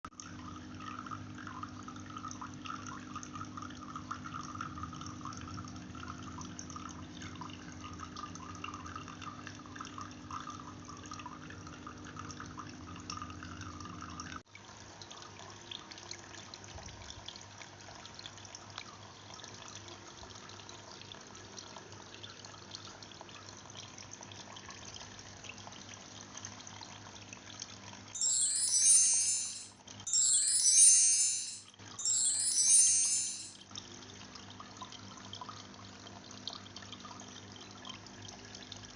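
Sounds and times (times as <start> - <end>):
water trickling in fountain: 0.1 - 38.9
bright chiming: 28.2 - 33.6.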